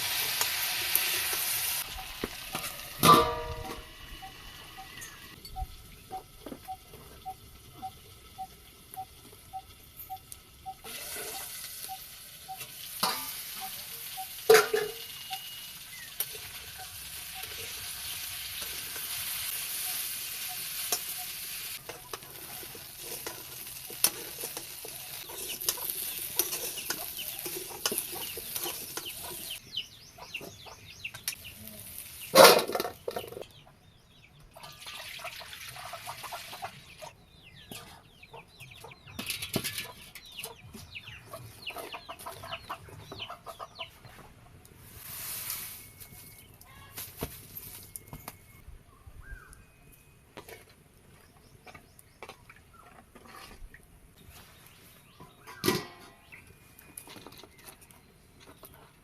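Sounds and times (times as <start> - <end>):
food sizzling in a pan: 0.0 - 5.4, 7.9 - 29.6, 31.3 - 32.4.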